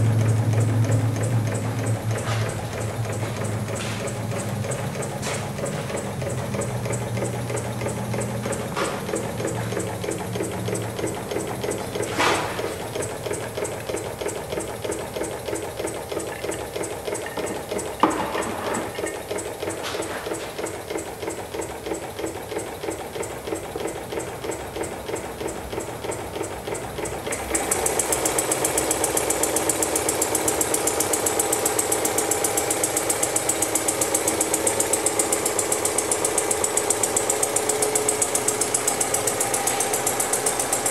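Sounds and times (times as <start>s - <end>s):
model engine running: 0.0s - 40.9s
sharp knocks: 12.0s - 12.9s, 17.3s - 19.2s.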